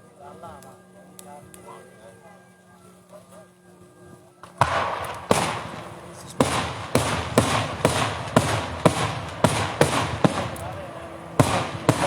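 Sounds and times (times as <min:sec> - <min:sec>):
fireworks bangs with echo: 0:04.4 - 0:12.0.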